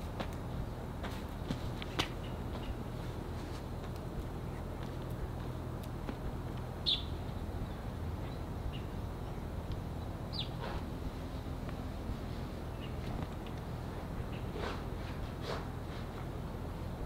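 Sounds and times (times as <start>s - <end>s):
low background noise: 0.0s - 17.0s
small bird chirping: 6.8s - 10.8s.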